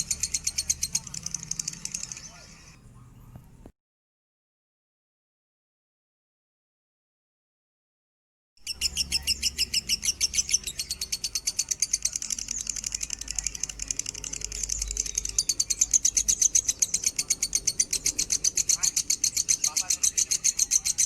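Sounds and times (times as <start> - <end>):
lovebird chattering: 0.0 - 2.8, 8.6 - 21.0.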